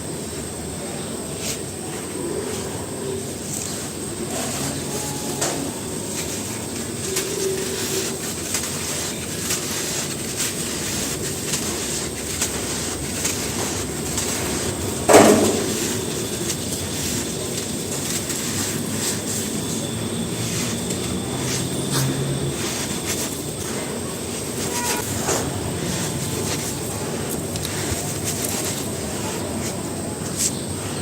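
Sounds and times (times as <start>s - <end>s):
dry cement crumbling: 6.1s - 31.0s.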